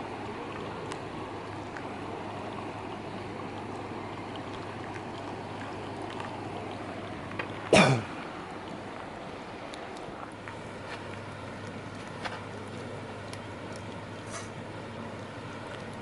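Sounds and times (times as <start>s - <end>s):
stream flowing: 0.0s - 16.0s.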